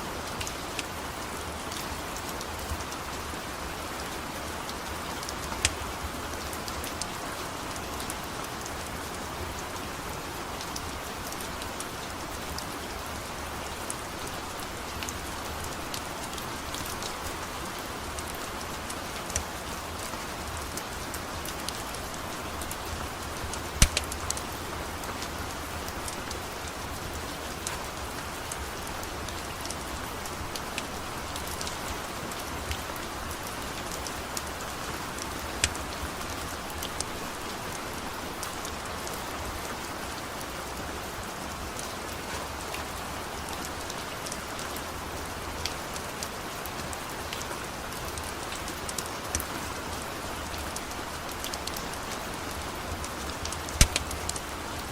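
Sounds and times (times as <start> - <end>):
steady rain falling: 0.0 - 54.9
sharp clicks and pops: 23.8 - 24.4, 53.7 - 54.4.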